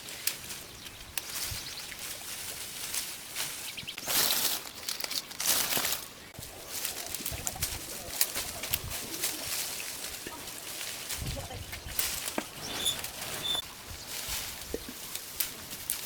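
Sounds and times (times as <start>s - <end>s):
bird high chirps: 12.6s - 13.6s.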